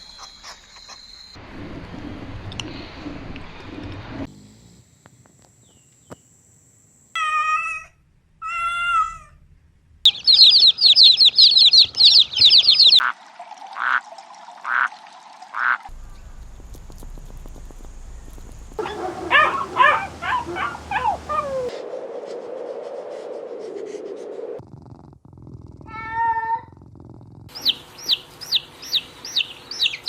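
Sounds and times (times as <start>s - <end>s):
cat meowing: 7.2s - 9.4s, 18.8s - 21.7s, 25.9s - 26.7s
high-pitched chirps: 10.1s - 13.0s.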